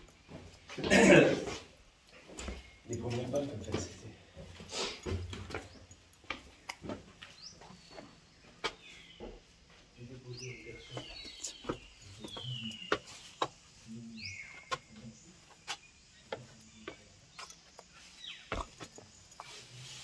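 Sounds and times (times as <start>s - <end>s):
footsteps on stone: 0.0s - 20.0s
birds whistling: 10.3s - 18.9s.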